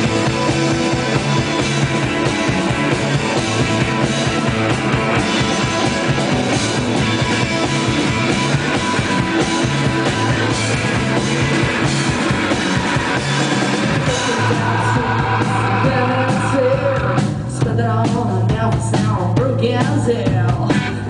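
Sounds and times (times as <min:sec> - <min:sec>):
rock band playing live: 0:00.0 - 0:21.0
person singing: 0:13.8 - 0:21.0.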